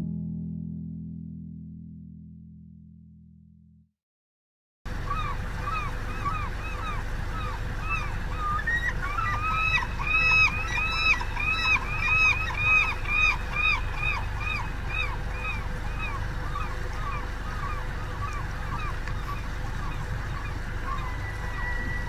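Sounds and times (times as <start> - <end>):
shallow creek rushing: 4.9 - 22.0
bird calling repeated notes: 5.0 - 22.0.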